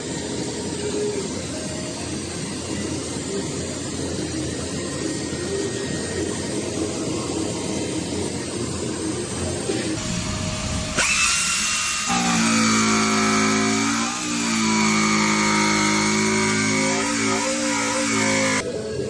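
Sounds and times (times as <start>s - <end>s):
power tool whirring: 10.0s - 18.6s.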